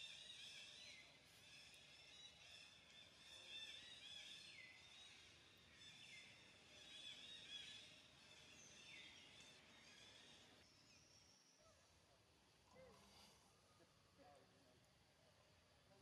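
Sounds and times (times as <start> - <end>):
faint birds chirping: 0.0 - 14.5.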